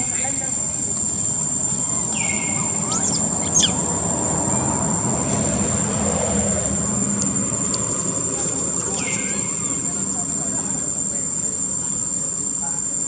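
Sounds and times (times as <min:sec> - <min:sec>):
high-pitched whine: 0:00.0 - 0:13.0
high sweeping bird chirps: 0:01.1 - 0:04.9, 0:08.9 - 0:09.9
falling bird whistle: 0:02.1 - 0:03.9.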